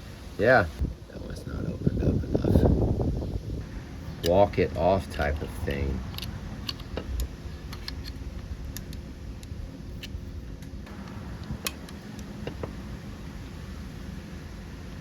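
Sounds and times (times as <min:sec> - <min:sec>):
low steady hum: 0:00.0 - 0:15.0
tools clicking and tapping: 0:06.0 - 0:10.2.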